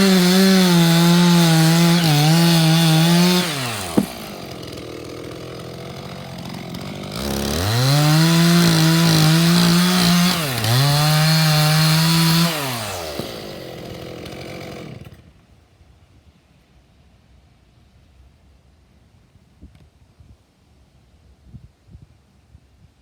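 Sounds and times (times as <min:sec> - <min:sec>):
chainsaw cutting log: 0:00.0 - 0:15.4.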